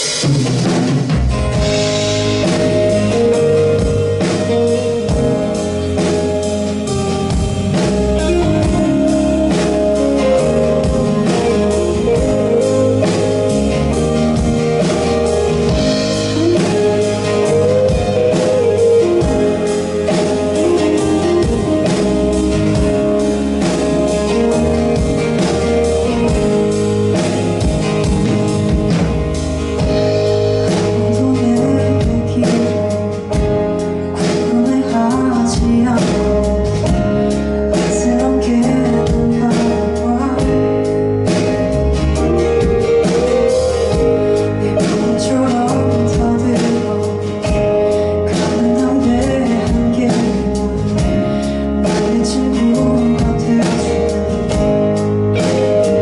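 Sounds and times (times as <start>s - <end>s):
guitar accompaniment: 0.0s - 56.0s
person singing: 2.3s - 27.4s, 29.8s - 56.0s.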